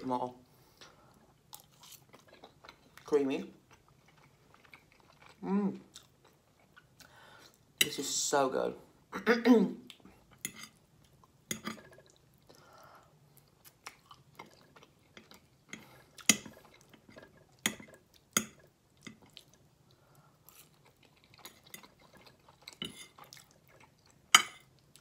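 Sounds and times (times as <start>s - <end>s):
chewing with wet mouth clicks: 13.4s - 19.6s, 20.5s - 25.0s.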